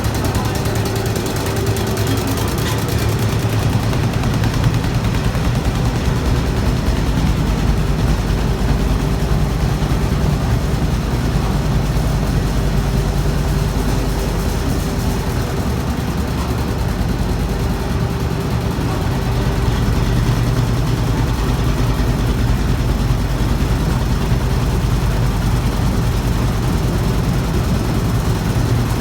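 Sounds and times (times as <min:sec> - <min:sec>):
low motor hum: 0:00.0 - 0:29.0
rapid rattle of beating strokes: 0:00.0 - 0:29.0.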